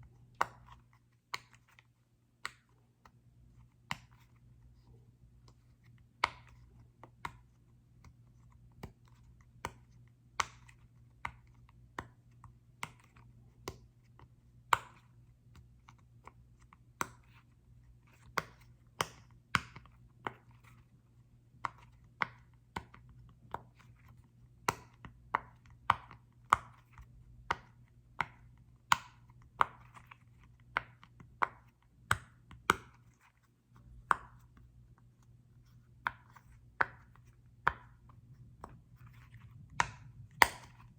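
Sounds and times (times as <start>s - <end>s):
taps and clicks on small object: 18.2s - 20.5s, 21.5s - 33.1s, 35.7s - 40.9s.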